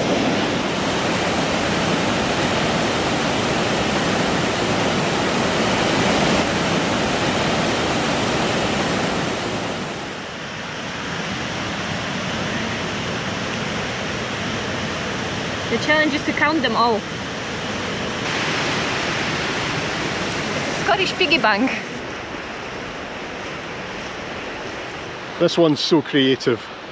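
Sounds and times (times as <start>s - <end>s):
waterfall rushing: 0.0s - 10.6s, 17.5s - 25.9s.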